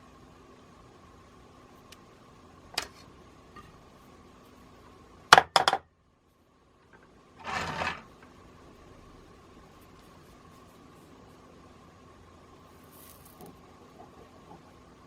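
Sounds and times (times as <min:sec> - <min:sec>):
sharp knocks on bench: 0:05.3 - 0:05.8.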